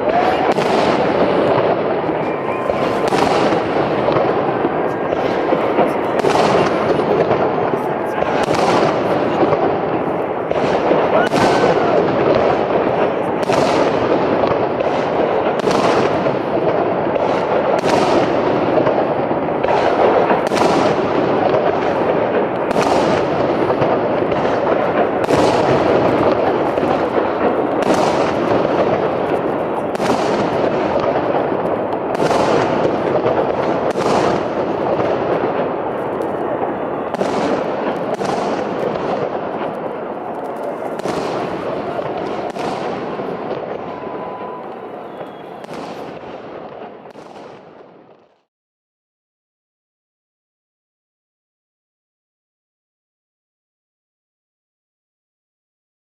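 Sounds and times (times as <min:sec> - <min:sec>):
dense din of fireworks bangs: 0:00.0 - 0:48.5
fireworks bursts: 0:00.0 - 0:48.5.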